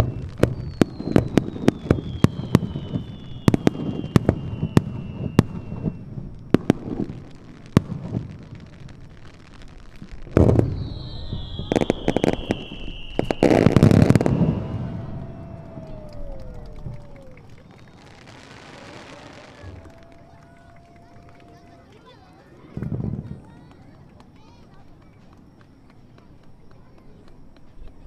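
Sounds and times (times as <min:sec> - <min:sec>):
firework shells booming: 0:00.0 - 0:21.3
firework whistles: 0:00.0 - 0:23.3
distant firework pops and crackles: 0:00.0 - 0:28.0.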